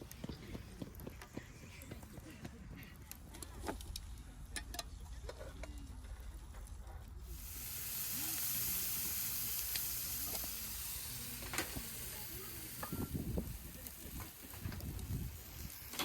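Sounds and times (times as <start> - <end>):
food sizzling in a pan: 7.2 - 16.0.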